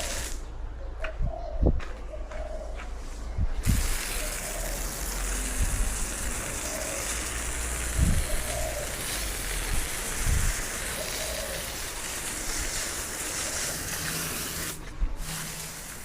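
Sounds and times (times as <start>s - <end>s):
pressure washer spraying water: 0.0s - 0.4s, 3.6s - 16.0s.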